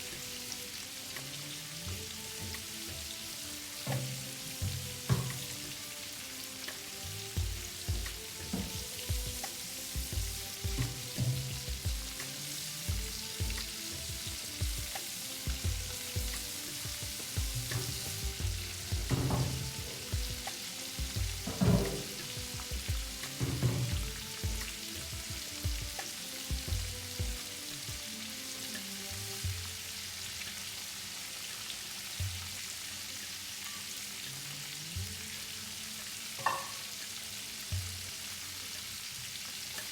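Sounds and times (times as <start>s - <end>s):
food sizzling in a pan: 0.0s - 39.9s
soft low knocks: 12.9s - 27.4s.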